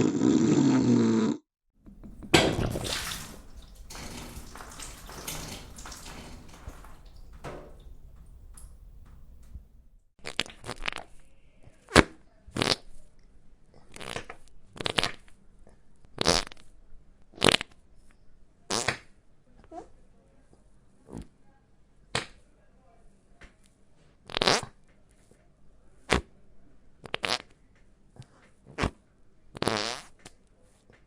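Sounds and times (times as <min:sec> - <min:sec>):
farting sounds: 0:00.0 - 0:01.4.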